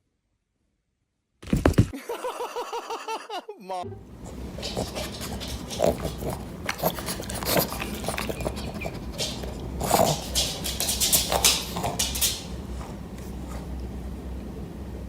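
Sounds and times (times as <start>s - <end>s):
knocks and scuffles: 1.4s - 1.9s
pet animal making noise: 4.4s - 12.6s.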